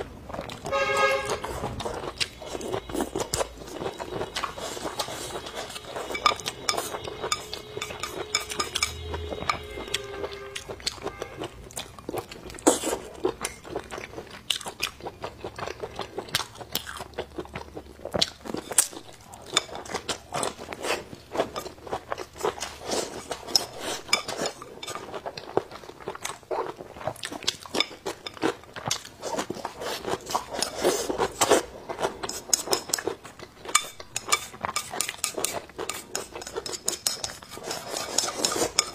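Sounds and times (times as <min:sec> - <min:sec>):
wet chewing and crunching: 0:00.0 - 0:38.9
chopsticks clicking on a bowl: 0:05.4 - 0:09.7.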